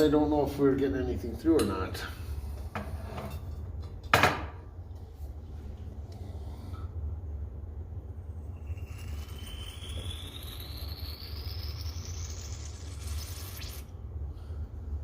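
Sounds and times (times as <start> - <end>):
steady low rumble: 4.7 - 15.0
faint rising whistle: 7.9 - 13.9.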